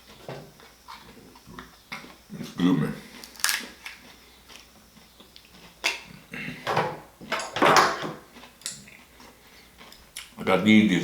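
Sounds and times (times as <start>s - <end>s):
lobster shell cracking: 3.2s - 4.0s.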